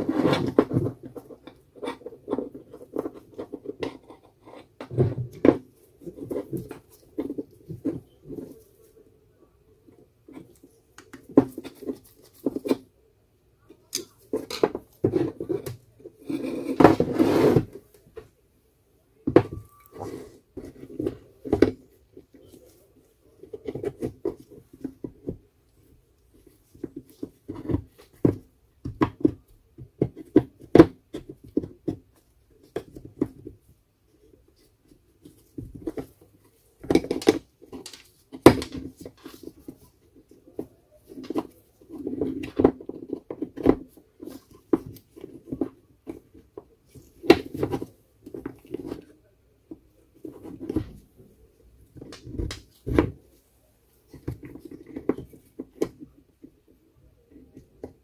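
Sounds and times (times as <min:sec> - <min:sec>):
scraping noise: 0:16.2 - 0:17.8.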